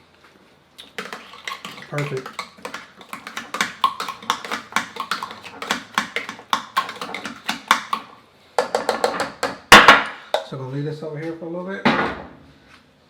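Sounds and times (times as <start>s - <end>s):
utensil clicking against a pot: 0.8s - 9.7s.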